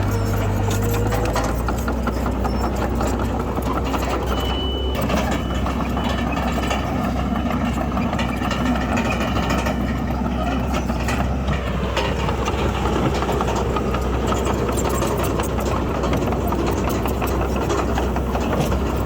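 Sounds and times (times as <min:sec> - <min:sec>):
diesel engine hum: 0:00.0 - 0:19.0
rattling clatter: 0:00.0 - 0:19.0
high squeal: 0:04.0 - 0:06.6.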